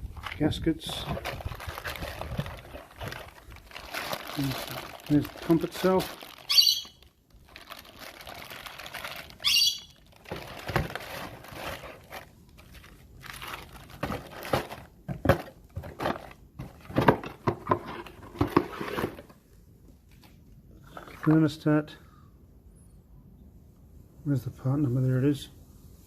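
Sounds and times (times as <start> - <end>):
cardboard and plastic crinkling: 0.0 - 19.4.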